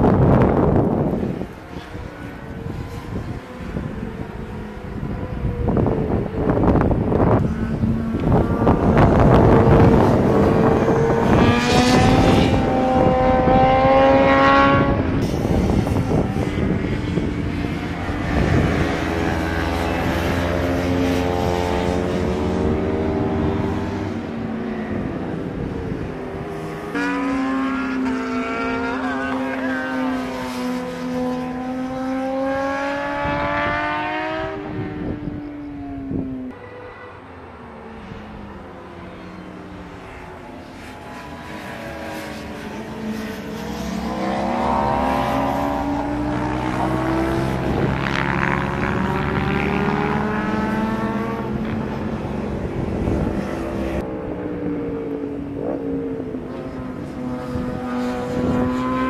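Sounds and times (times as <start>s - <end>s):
race car engine revving: 5.7s - 35.2s, 40.1s - 54.1s.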